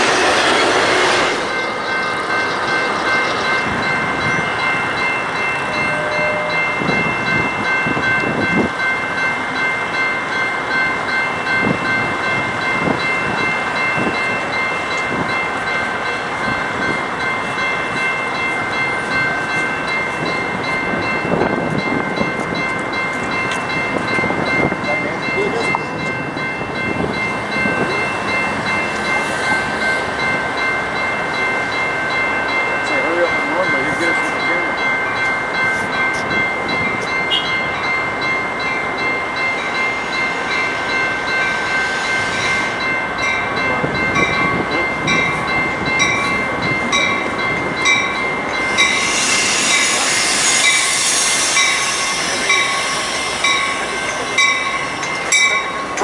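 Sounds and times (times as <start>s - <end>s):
train rumbling past: 0.0s - 56.0s
high-pitched ringing tone: 1.5s - 15.1s.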